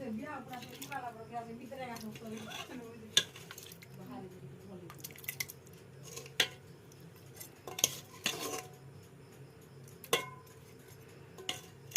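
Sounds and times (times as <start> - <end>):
metal utensil scraping a pot: 2.0 - 3.9, 5.0 - 6.6, 7.2 - 8.8, 10.0 - 11.9.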